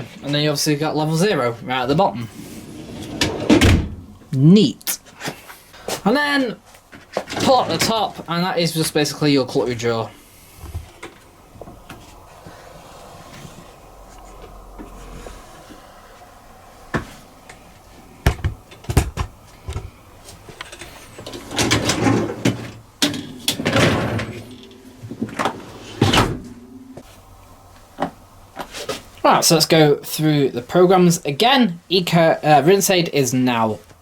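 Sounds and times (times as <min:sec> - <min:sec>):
racks sliding on rails: 0:02.2 - 0:03.8, 0:20.6 - 0:27.0.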